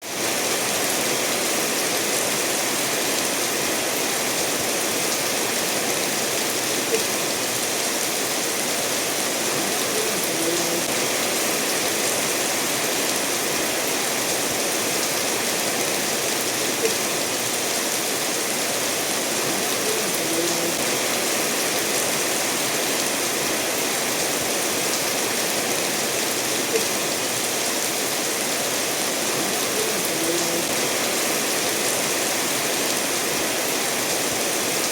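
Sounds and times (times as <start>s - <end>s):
steady rainfall: 0.0s - 34.9s
stream running over stones: 0.0s - 34.9s.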